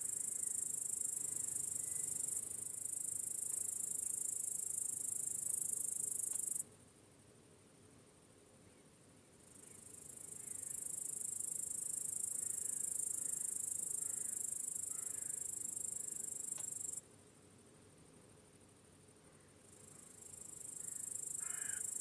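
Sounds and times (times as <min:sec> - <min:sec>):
crickets trilling: 0:09.7 - 0:17.0, 0:19.7 - 0:22.0.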